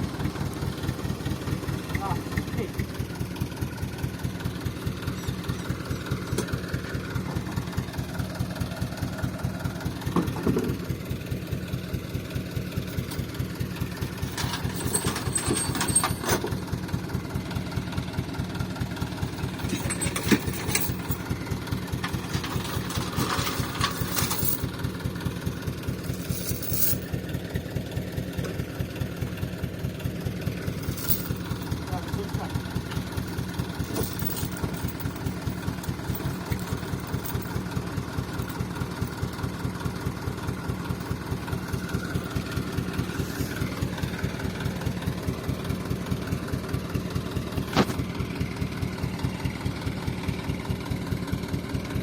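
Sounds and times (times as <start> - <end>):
truck engine idling: 0.0 - 52.0
short clatters: 12.9 - 16.6, 19.0 - 27.2, 30.7 - 37.7.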